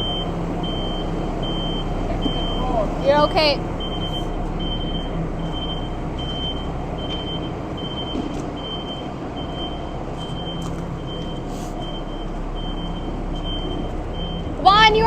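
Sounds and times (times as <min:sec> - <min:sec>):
reversing alarm beeping: 0:00.0 - 0:14.5
diesel engine running: 0:00.0 - 0:15.0.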